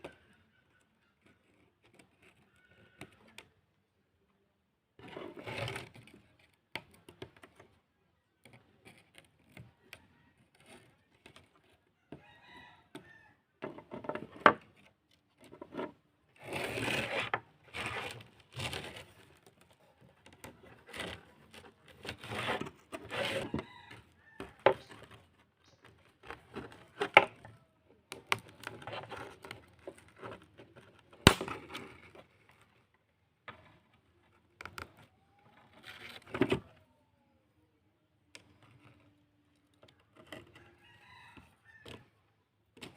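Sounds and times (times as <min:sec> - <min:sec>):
scraping or scrubbing: 0:15.5 - 0:19.7, 0:20.4 - 0:27.4.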